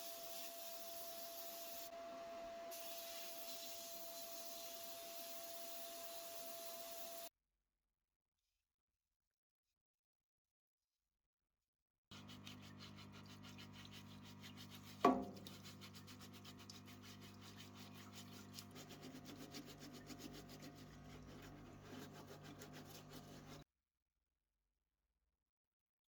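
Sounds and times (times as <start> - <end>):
small motor humming: 0.0 - 7.3, 12.1 - 23.6
rubbing rasping sound: 12.1 - 23.6.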